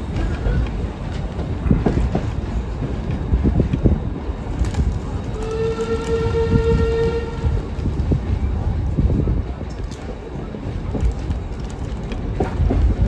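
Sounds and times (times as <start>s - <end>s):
train coach rumbling on rails: 0.0s - 13.0s
locomotive horn blast: 5.3s - 7.7s
track knocks: 8.9s - 13.0s.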